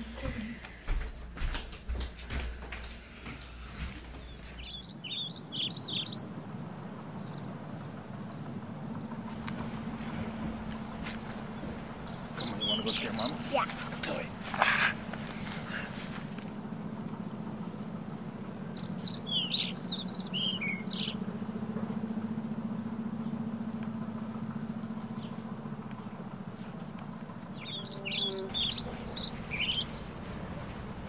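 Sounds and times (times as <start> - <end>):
steady low hum: 0.0 - 31.0
songbird chirping: 4.0 - 31.0.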